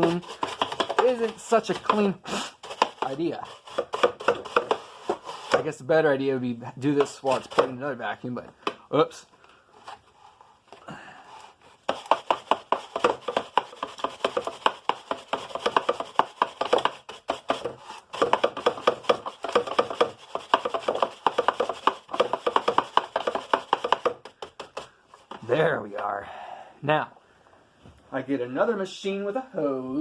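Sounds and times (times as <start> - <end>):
brush scrubbing plastic: 0.0 - 5.6, 11.4 - 24.0.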